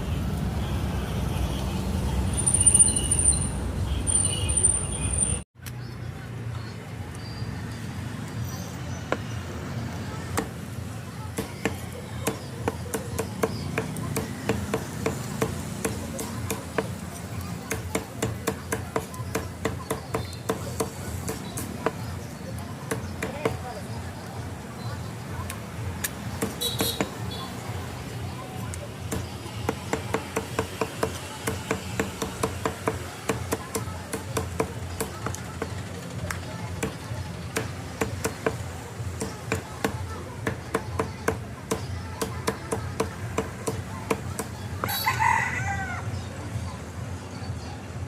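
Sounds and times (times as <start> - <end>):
cleaver chopping on wooden block: 11.3 - 17.0, 17.6 - 22.1, 26.0 - 27.2, 29.1 - 35.8, 36.8 - 44.9.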